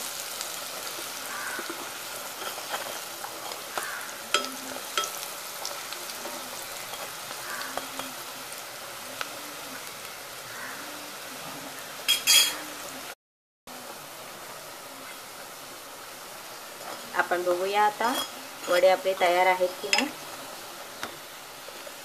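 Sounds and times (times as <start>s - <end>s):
food sizzling in hot oil: 0.0s - 22.0s
metal spoon clicking on pan: 3.4s - 5.2s.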